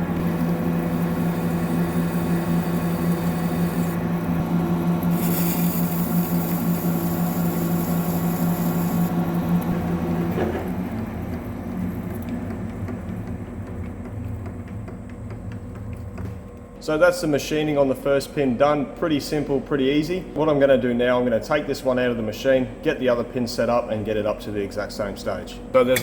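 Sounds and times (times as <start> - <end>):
lathe machine hum: 0.0 - 16.4
metal cutting hiss: 5.1 - 9.1.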